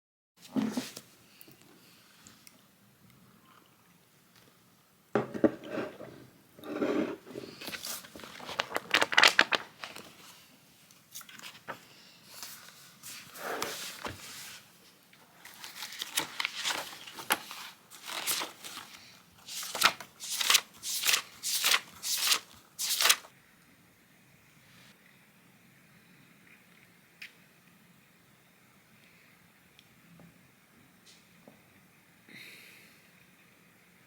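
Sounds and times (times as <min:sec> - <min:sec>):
crinkling and rustling: 0:06.8 - 0:23.3.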